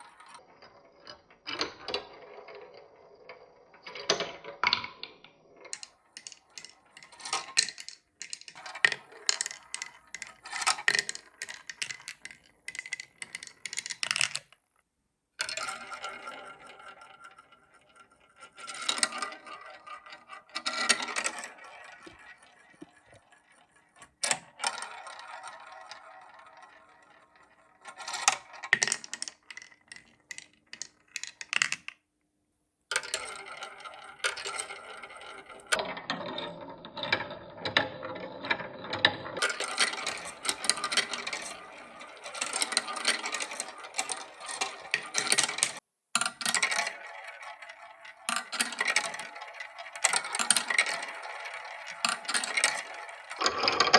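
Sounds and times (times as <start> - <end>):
marbles clattering on plastic: 0.0 - 14.6, 15.4 - 32.0, 32.9 - 53.9.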